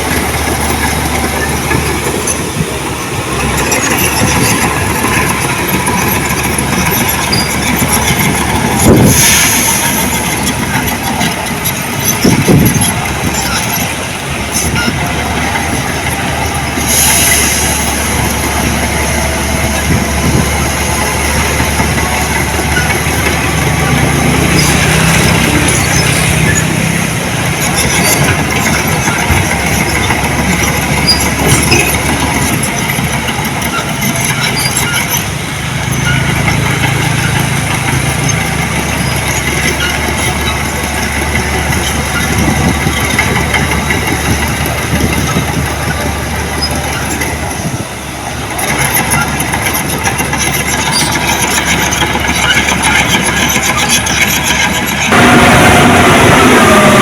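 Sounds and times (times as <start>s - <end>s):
diesel engine of heavy machinery: 0.0s - 57.0s.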